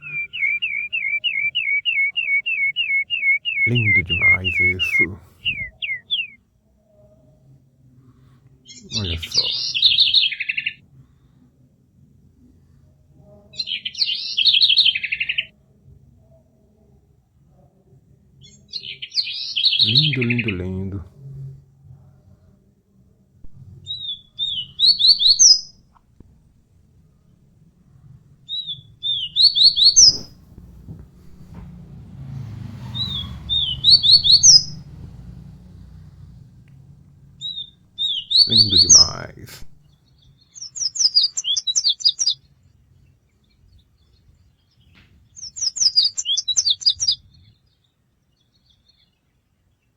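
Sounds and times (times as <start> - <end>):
songbird singing: 0.0 - 6.4, 8.6 - 10.8, 13.5 - 15.5, 18.4 - 21.1, 23.4 - 49.9.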